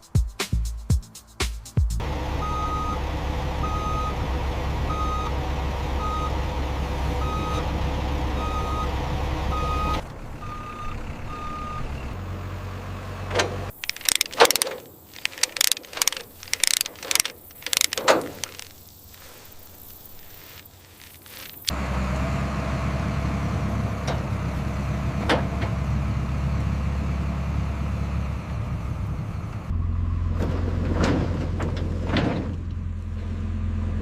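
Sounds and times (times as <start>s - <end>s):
heavy vehicle engine running: 2.0s - 34.0s
reversing alarm beeping: 2.3s - 12.2s
sharp clicks and knocks: 13.3s - 19.3s.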